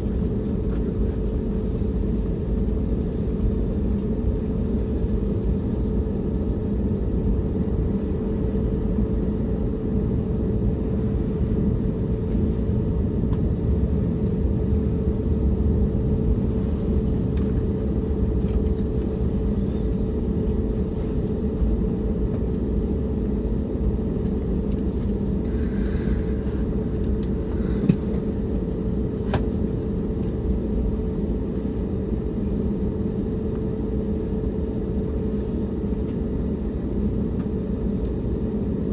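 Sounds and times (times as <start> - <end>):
aircraft cabin engine drone: 0.0 - 38.9.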